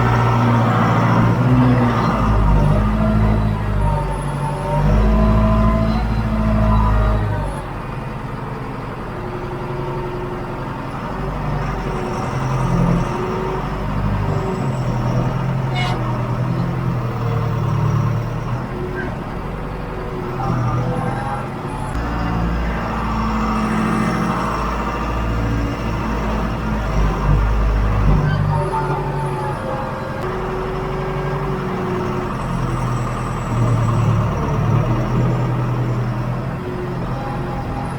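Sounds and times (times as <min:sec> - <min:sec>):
diesel engine running: 0:00.0 - 0:37.9.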